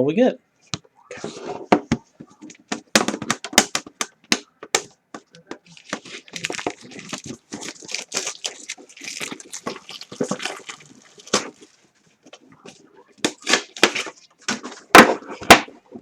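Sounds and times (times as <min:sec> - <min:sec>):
plastic wrap tearing and crinkling: 0:04.8 - 0:11.9, 0:13.2 - 0:15.7.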